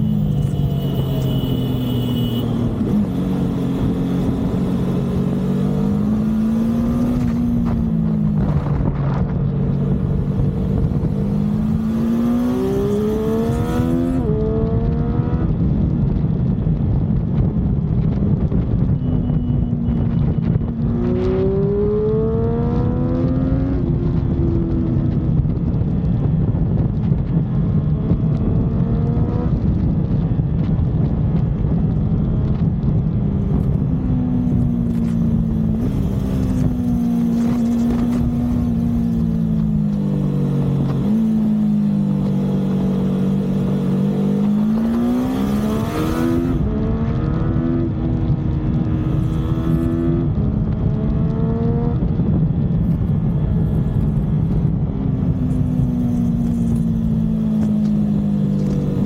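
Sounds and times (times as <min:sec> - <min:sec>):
motorcycle engine accelerating: 0:00.0 - 0:59.0
wind and road noise: 0:00.0 - 0:59.0.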